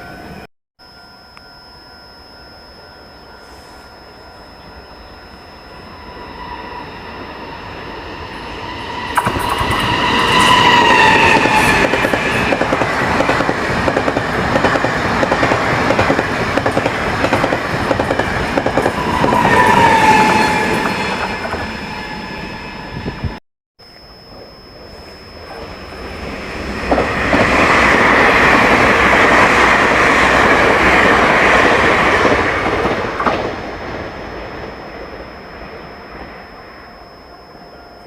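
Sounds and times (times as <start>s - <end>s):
high tone dropping in pitch: 0.0s - 12.6s, 19.0s - 28.5s, 33.1s - 38.0s
train running on rails: 3.0s - 23.4s, 24.3s - 38.0s.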